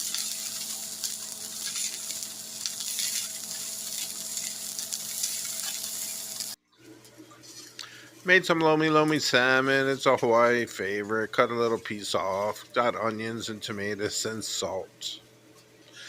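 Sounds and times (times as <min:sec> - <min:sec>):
fish sizzling in oil: 0:00.0 - 0:06.6.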